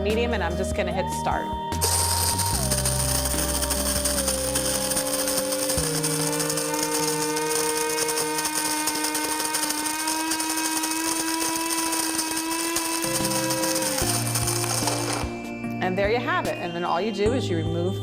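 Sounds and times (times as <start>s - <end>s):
coffee grinder motor whine: 1.8s - 15.6s.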